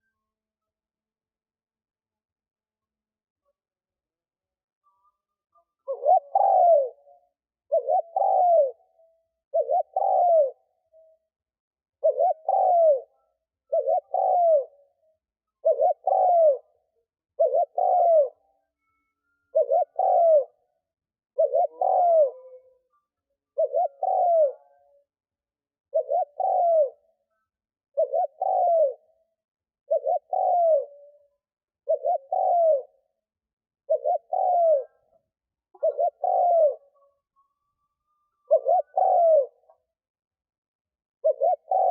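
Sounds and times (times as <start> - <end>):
dove cooing: 5.8 - 10.7, 12.0 - 13.1, 13.7 - 15.0, 15.6 - 18.4, 19.5 - 20.6, 21.4 - 22.7, 23.6 - 25.0, 25.9 - 27.1, 27.9 - 29.1, 29.9 - 33.0, 33.9 - 35.1, 35.7 - 37.5, 38.4 - 39.9, 41.2 - 41.9.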